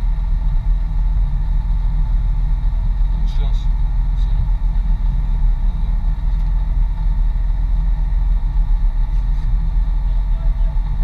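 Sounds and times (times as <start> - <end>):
off-road vehicle driving: 0.0 - 11.0.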